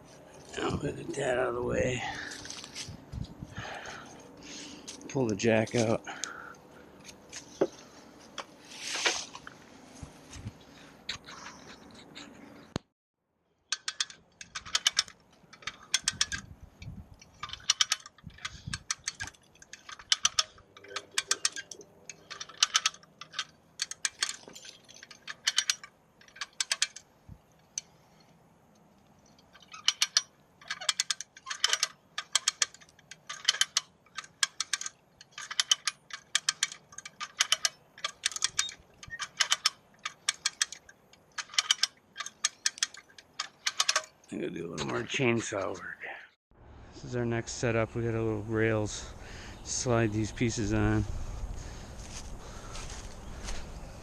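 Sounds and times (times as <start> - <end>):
footsteps crunching dry leaves: 51.1 - 54.0.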